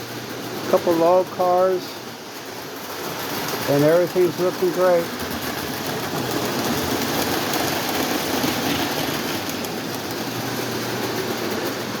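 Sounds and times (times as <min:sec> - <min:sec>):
toy train motors whirring: 0:02.9 - 0:11.9.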